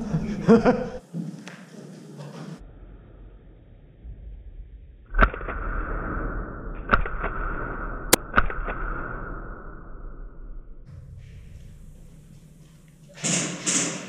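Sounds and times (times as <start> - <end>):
airsoft gun shots: 6.8 - 10.3, 13.1 - 14.0
steady whirring hiss: 10.9 - 14.0.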